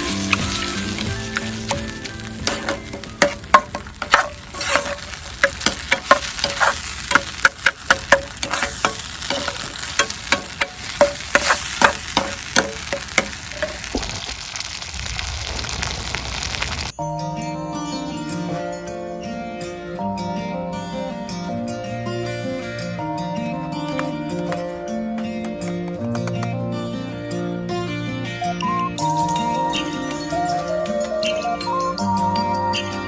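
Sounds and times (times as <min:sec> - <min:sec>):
food sizzling in a pan: 0:00.0 - 0:17.0, 0:23.6 - 0:26.4
metal spatula clinking on pan: 0:01.4 - 0:13.9.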